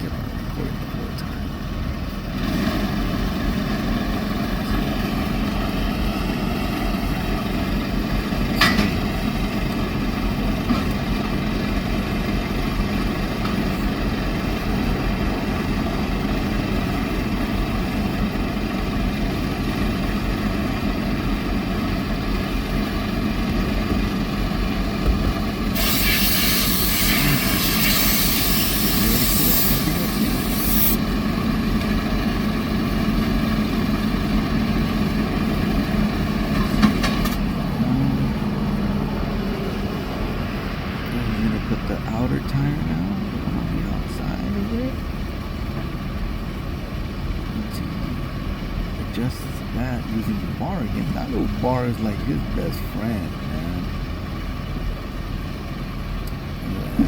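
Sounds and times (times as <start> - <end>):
truck engine idling: 0.0 - 57.0
compressed air hissing: 25.7 - 31.0.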